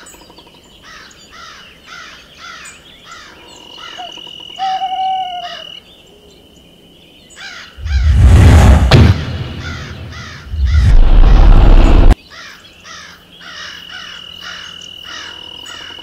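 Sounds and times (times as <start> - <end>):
bird calling: 0.0 - 6.3
loud rushing boom: 7.8 - 12.2.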